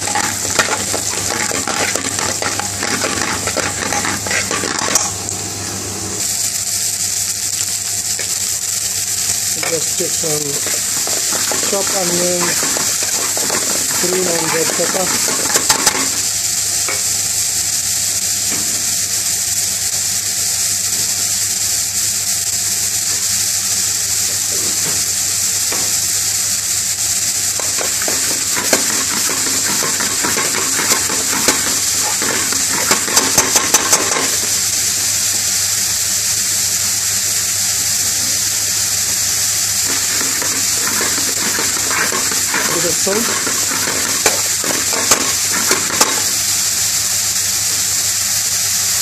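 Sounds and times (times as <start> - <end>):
metal spoon scraping and clinking: 0.0 - 5.2, 9.6 - 17.1, 27.6 - 34.6, 39.9 - 46.4
vegetables sizzling in hot oil: 0.0 - 49.0.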